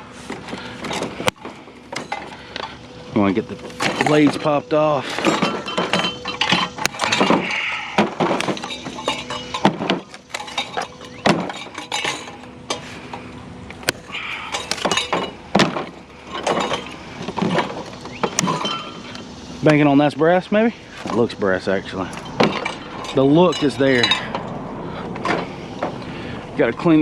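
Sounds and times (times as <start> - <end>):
metal scrap clinking and cracking: 0.3 - 19.8, 21.9 - 26.1.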